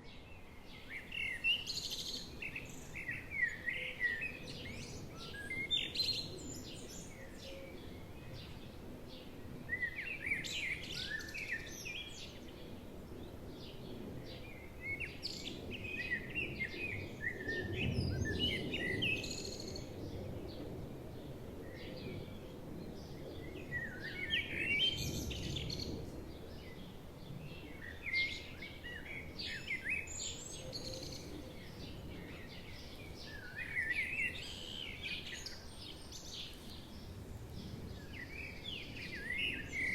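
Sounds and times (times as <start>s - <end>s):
songbirds chirping: 0.0s - 39.9s
forest ambience: 23.8s - 39.9s.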